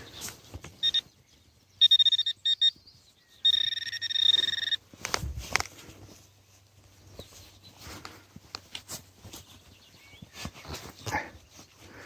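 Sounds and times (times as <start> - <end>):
pinpointer electronic tone: 0.8 - 1.1, 1.8 - 2.8, 3.4 - 4.8.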